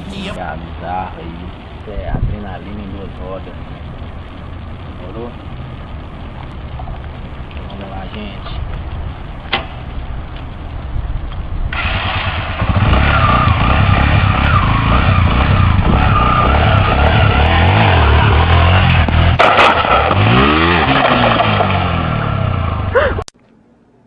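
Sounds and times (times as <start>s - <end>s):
motorcycle engine revving: 11.6s - 23.0s
sharp clatter: 11.7s - 22.4s.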